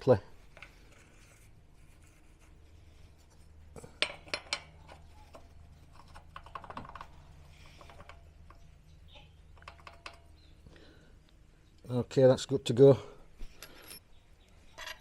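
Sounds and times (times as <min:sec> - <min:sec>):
small metal parts clinking: 0:13.4 - 0:14.1, 0:14.7 - 0:15.0.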